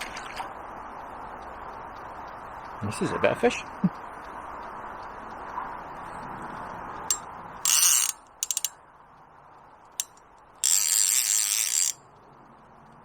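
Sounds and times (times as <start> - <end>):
fishing reel ratchet clicking: 7.1 - 8.7, 10.0 - 12.0.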